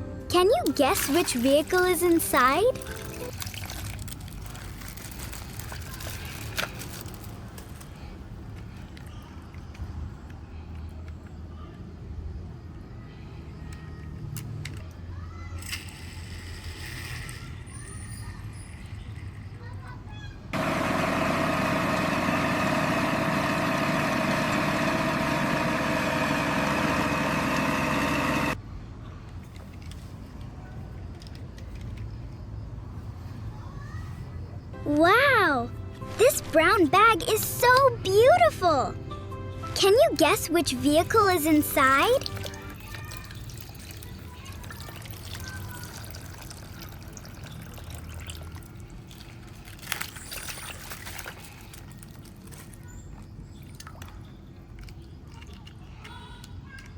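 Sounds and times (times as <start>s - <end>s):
plastic bag crinkling: 0.7s - 8.1s
engine idling: 20.6s - 28.6s.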